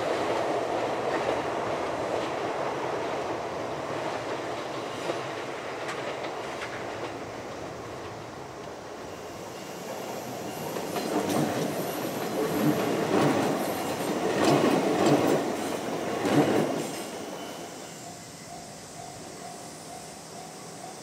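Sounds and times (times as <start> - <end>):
electric train passing: 0.0 - 21.0
wheels clacking over rail joints: 9.9 - 17.2.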